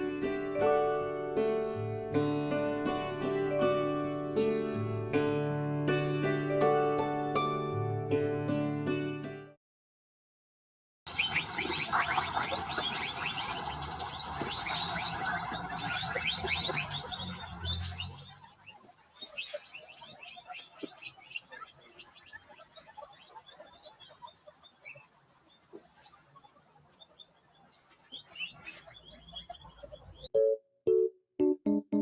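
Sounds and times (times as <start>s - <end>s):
small birds chirping: 11.1s - 30.3s.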